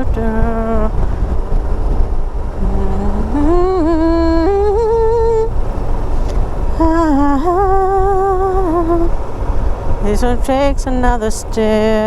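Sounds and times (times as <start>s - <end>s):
motorcycle engine rumble: 0.0s - 12.0s
wind: 0.0s - 12.0s
person humming: 2.6s - 5.5s.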